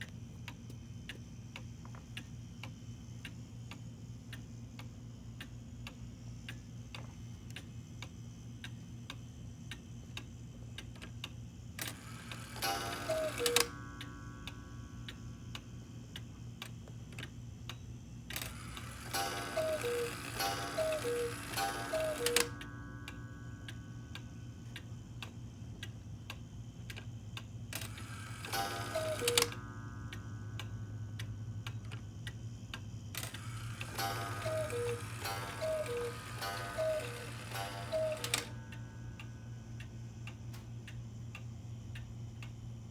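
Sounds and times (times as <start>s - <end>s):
clock ticking: 0.0s - 42.6s
cuckoo clock calls: 11.9s - 13.8s, 18.4s - 22.6s, 27.8s - 29.6s, 33.2s - 38.6s.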